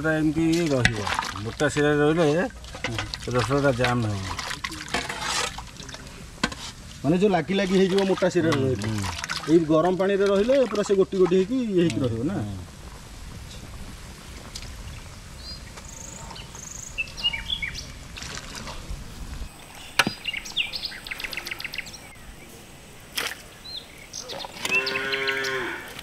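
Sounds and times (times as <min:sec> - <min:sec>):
birds chirping and whistling: 0:15.0 - 0:18.0, 0:19.5 - 0:22.5, 0:23.5 - 0:25.8.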